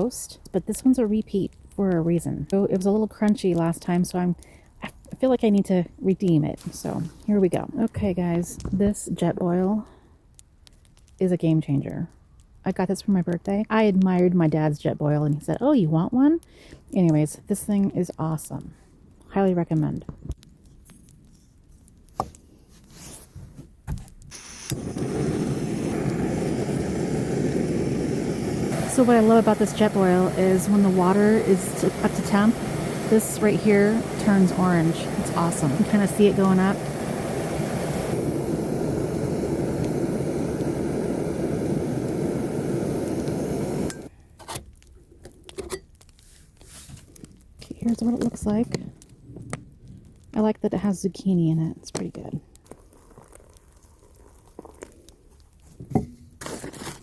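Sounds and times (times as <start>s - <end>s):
gas burner rushing: 24.3s - 44.1s.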